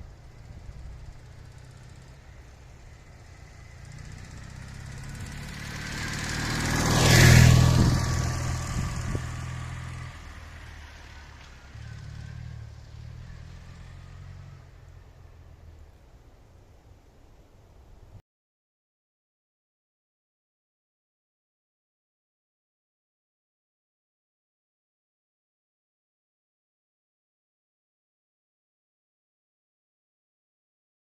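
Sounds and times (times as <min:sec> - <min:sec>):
motorcycle engine passing by: 0:00.0 - 0:15.9.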